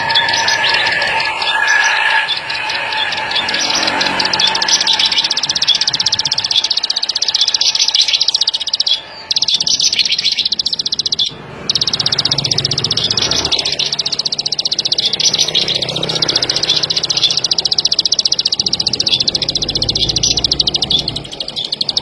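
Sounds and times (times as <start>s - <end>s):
bird trilling clicking notes: 0.0s - 22.0s.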